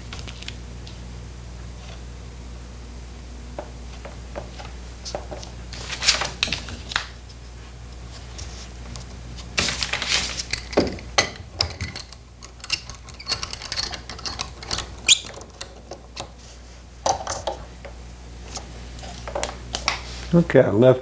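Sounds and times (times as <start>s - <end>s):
steady low hum: 0.0s - 21.0s
metal clamps clicking and clinking: 10.2s - 16.3s.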